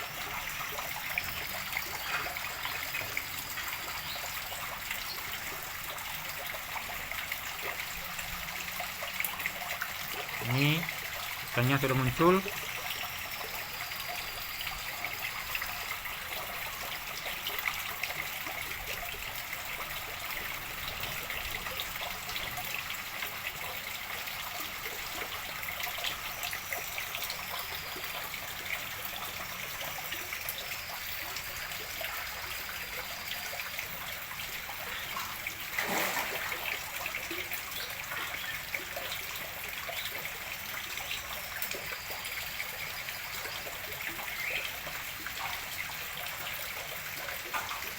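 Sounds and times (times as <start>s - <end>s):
water trickling into a pond: 0.0s - 47.9s.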